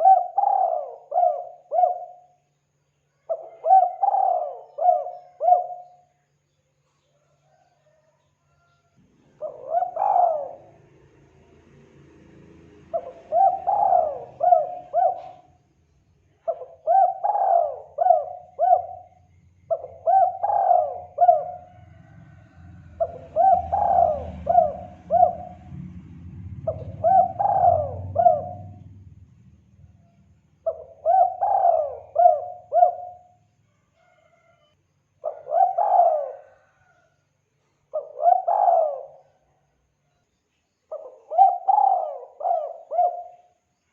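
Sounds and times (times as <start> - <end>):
dove cooing: 0.0 - 2.5, 3.2 - 6.2, 7.4 - 8.6, 9.2 - 11.0, 12.9 - 15.6, 16.4 - 25.8, 26.6 - 29.0, 30.6 - 33.4, 35.2 - 37.1, 37.9 - 39.6, 40.9 - 43.6
faint low rumble: 21.6 - 31.1.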